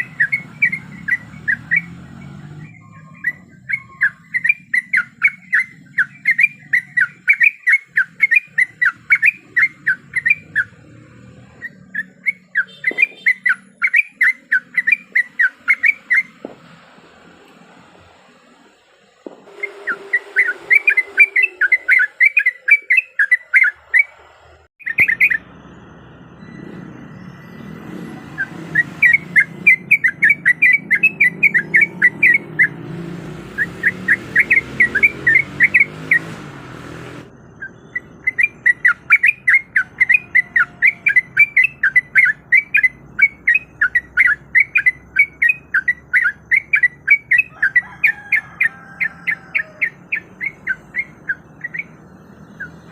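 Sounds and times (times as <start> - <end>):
bulbul bubbly chattering song: 0.0 - 2.0, 2.6 - 16.3, 37.5 - 47.9.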